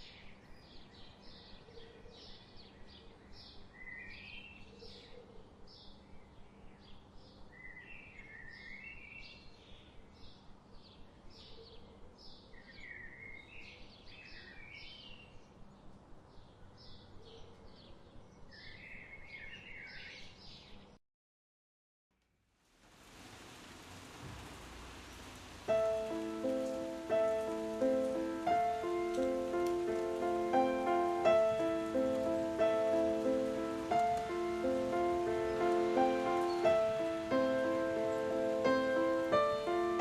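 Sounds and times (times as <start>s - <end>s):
faint background noise: 0.0s - 21.0s, 22.2s - 40.0s
bird chirping: 24.2s - 40.0s.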